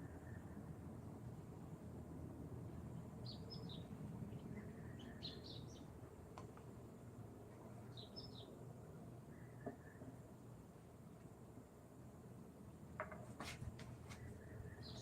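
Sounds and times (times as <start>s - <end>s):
faint steady hum: 0.0s - 15.0s
small bird chirping: 3.2s - 5.9s, 7.9s - 8.6s, 14.4s - 15.0s.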